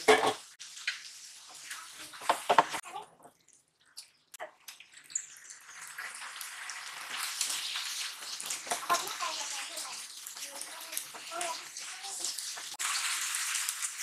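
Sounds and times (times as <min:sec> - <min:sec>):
sauce bubbling and sizzling in pan: 0:00.0 - 0:14.0
liver pieces sizzling: 0:05.0 - 0:14.0.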